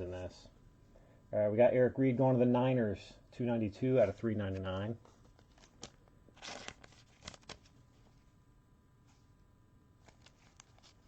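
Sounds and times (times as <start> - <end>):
trading cards rustling: 4.4 - 8.3, 10.0 - 11.0.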